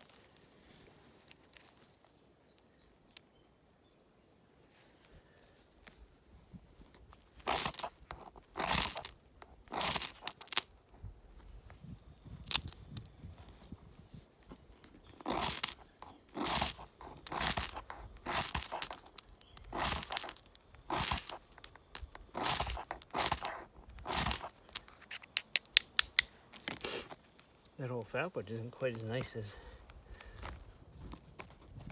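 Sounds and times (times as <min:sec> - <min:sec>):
knife shaving wood: 0:06.8 - 0:11.4, 0:12.2 - 0:31.9.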